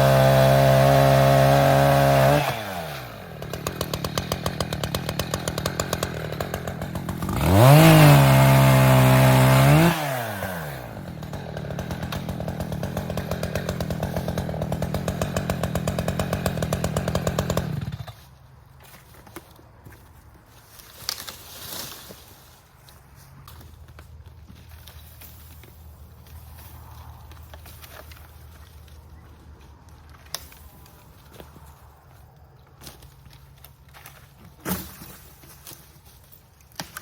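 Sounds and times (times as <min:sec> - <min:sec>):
chainsaw idling and revving: 0:00.0 - 0:18.2.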